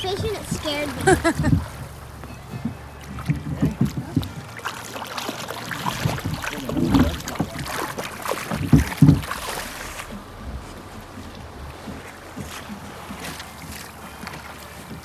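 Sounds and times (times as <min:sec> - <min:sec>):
river water rushing and splashing: 0:00.0 - 0:15.0
dull heavy thumps: 0:05.9 - 0:15.0.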